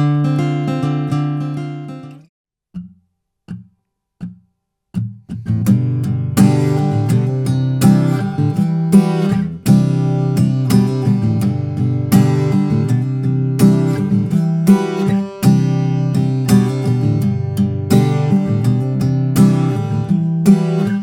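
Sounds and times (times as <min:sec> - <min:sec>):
acoustic guitar strumming chords: 0:00.0 - 0:02.2, 0:05.0 - 0:21.0.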